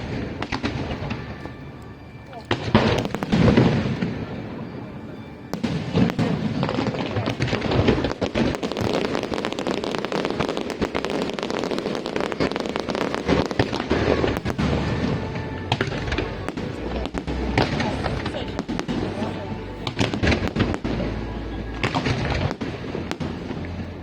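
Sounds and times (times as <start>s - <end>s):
fireworks crackling: 0.0s - 24.0s
firework bang: 5.5s - 21.0s.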